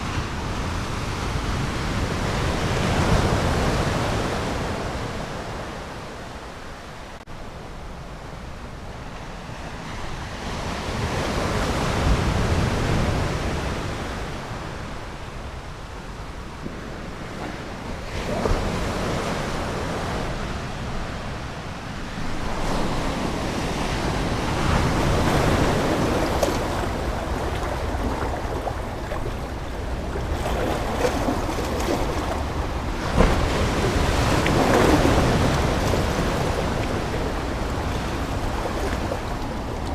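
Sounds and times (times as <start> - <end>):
ocean waves breaking: 9.4 - 39.9.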